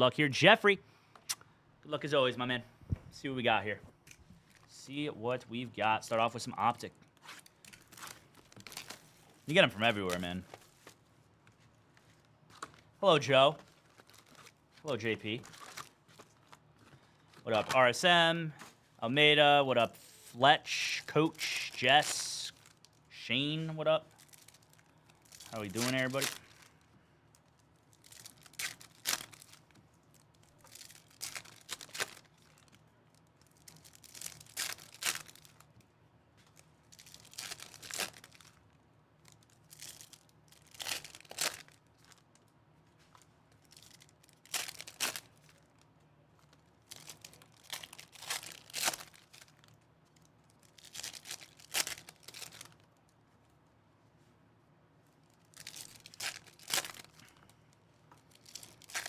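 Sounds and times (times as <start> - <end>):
card pack wrappers tearing: 20.8 - 23.6, 24.2 - 26.7, 28.0 - 32.8, 33.5 - 35.7, 37.0 - 38.6, 39.7 - 42.2, 43.6 - 45.7, 46.9 - 49.7, 50.6 - 52.8, 55.6 - 57.3, 58.3 - 59.0.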